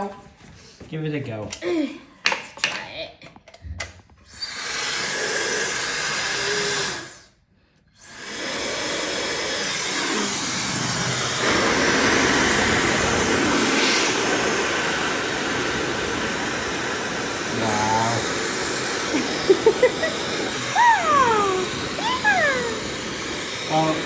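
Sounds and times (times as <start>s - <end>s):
hair dryer blowing: 8.0s - 24.0s.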